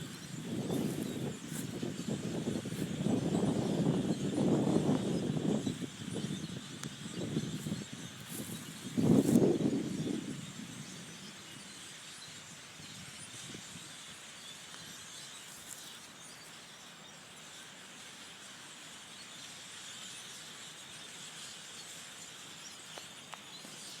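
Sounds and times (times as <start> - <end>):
flock of blackbirds chattering: 0.0 - 24.0.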